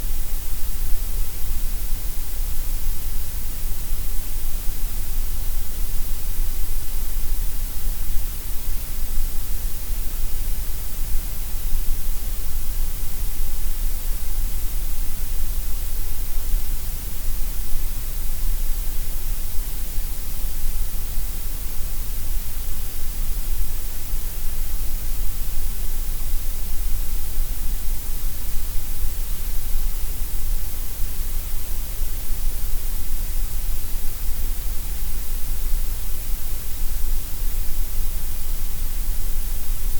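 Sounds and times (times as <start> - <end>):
gray noise hiss: 0.0 - 39.9.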